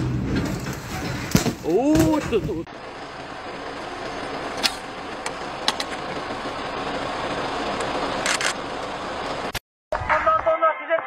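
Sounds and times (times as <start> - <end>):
car engine idling: 1.8 - 9.5.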